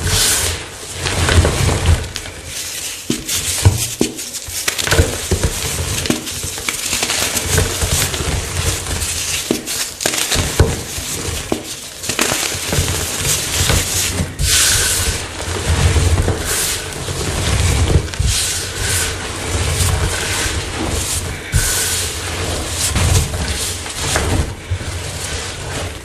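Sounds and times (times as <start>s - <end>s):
chalk blocks crunching: 0.0s - 26.0s.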